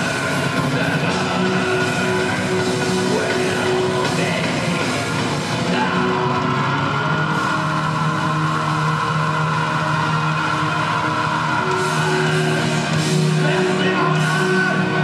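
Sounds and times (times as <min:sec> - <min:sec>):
bass guitar: 0:00.0 - 0:15.0
distorted electric guitars: 0:00.0 - 0:15.0
drums: 0:00.0 - 0:15.0.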